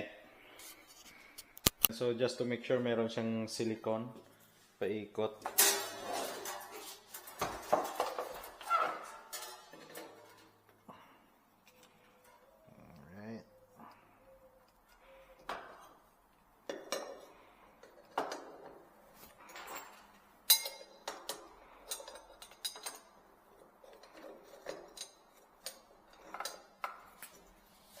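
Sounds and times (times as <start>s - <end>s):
hard objects clinking and knocking: 5.4s - 10.7s, 16.6s - 27.5s.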